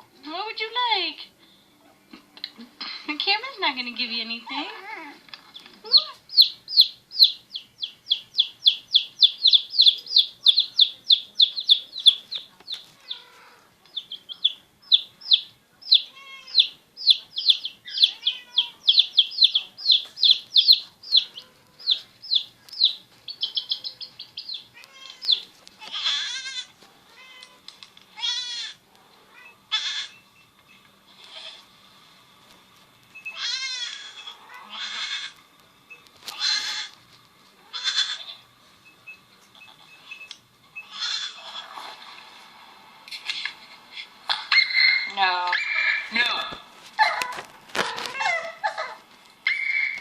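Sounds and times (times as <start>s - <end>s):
small animal peeping: 4.7s - 31.6s, 33.0s - 37.0s, 37.6s - 41.8s, 44.4s - 46.2s, 47.0s - 50.0s
rough animal cries: 13.0s - 13.7s, 18.1s - 18.9s, 24.8s - 27.6s, 28.2s - 30.2s, 33.3s - 35.4s, 36.3s - 37.0s, 37.6s - 38.4s, 40.8s - 41.8s, 47.0s - 50.0s.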